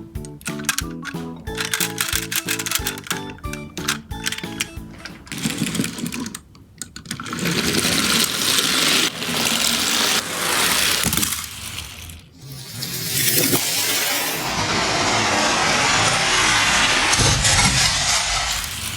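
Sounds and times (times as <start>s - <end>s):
light background music: 0.0s - 5.9s
toy trucks rattling down a slope: 0.5s - 14.6s.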